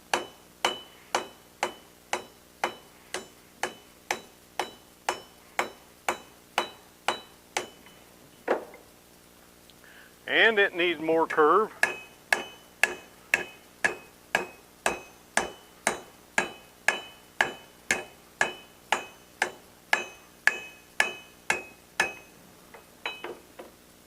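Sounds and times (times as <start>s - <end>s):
hammer ringing on steel disc: 0.1s - 8.1s, 11.7s - 23.4s.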